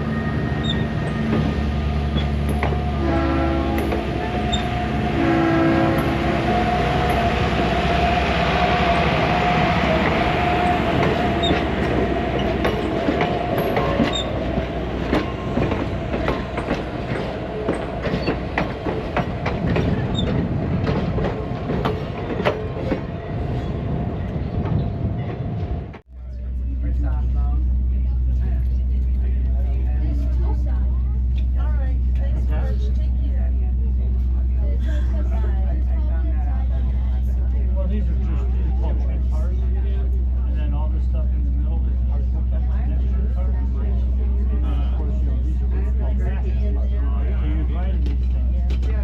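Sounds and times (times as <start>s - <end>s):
diesel train engine drone: 0.0s - 49.0s
train horn: 2.7s - 11.6s
wheels clicking over rail joints: 10.6s - 23.2s.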